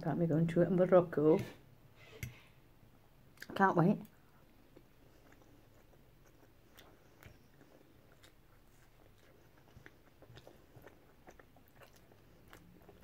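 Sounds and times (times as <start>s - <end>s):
person chewing food: 4.1s - 13.0s.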